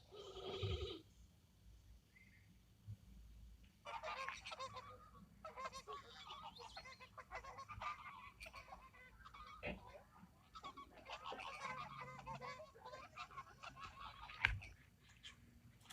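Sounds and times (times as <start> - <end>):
flock of waterfowl calling: 3.9 - 14.8.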